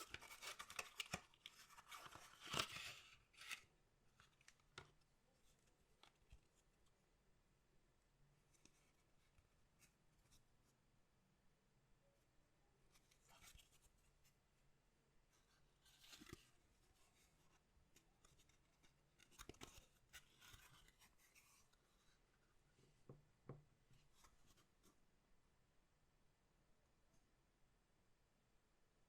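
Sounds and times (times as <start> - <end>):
cards rustling and clicking: 0.0 - 3.7, 15.9 - 16.5, 18.2 - 21.6.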